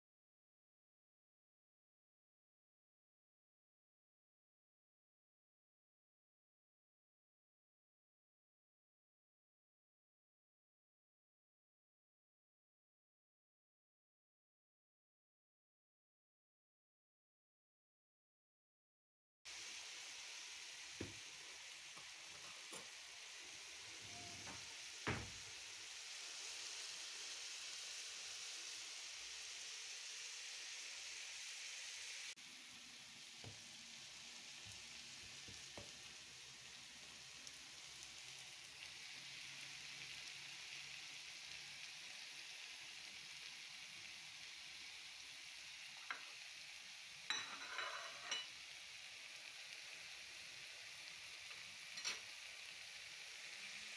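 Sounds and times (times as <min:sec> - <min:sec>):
greens sizzling in a pan: 0:19.5 - 0:53.9.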